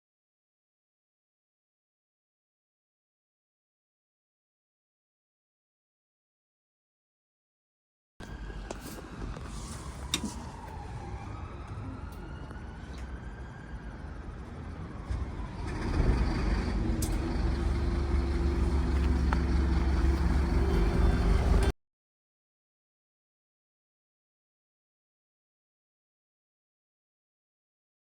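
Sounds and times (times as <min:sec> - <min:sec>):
bus drivetrain whine: 0:08.2 - 0:21.8
diesel engine droning: 0:08.2 - 0:21.8.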